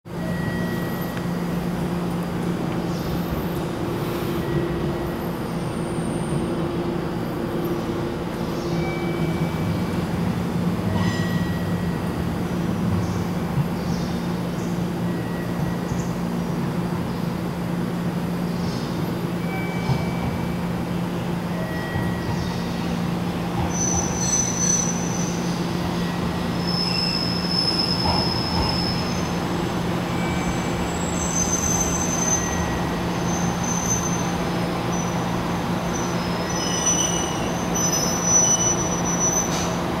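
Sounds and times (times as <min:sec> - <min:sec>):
diesel railcar humming: 0:00.1 - 0:40.0
high-pitched wheel squeals: 0:23.7 - 0:29.3, 0:35.9 - 0:39.8.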